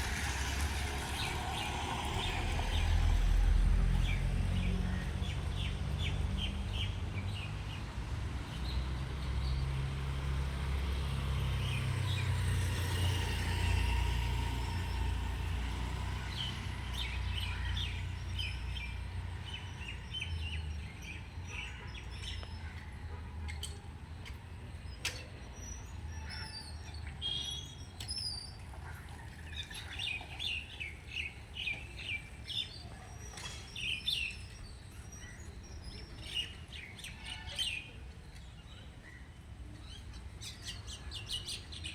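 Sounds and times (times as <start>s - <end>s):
small birds chirping: 11.4s - 41.9s.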